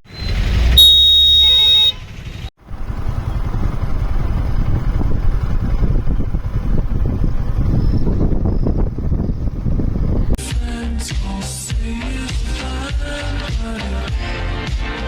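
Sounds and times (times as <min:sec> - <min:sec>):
motorcycle engine rumble: 0:00.0 - 0:10.4
vehicle horn: 0:00.6 - 0:02.2
wind rush: 0:02.7 - 0:10.4.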